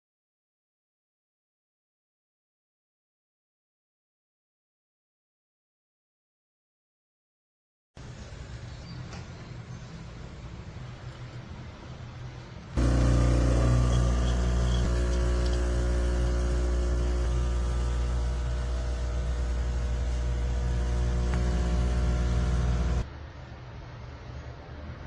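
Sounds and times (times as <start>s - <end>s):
espresso machine pump buzzing: 12.8s - 23.1s.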